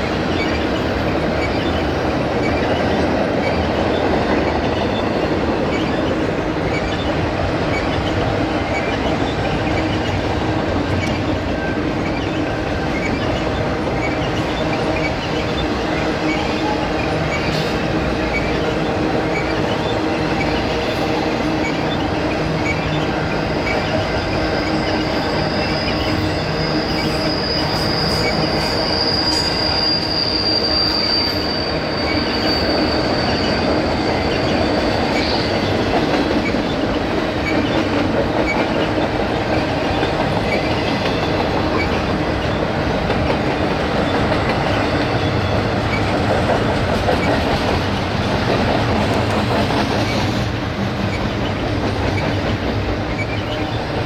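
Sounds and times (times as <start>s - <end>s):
freight train wheels rumbling: 0.0s - 54.0s
high thin wheel squeal: 22.6s - 35.7s.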